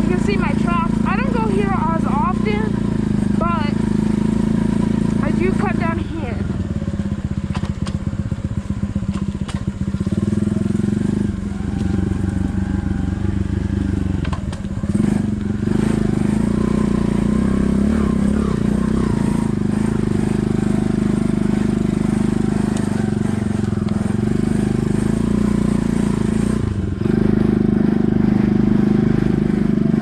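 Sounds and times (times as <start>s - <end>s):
pit bike engine running: 0.0s - 30.0s.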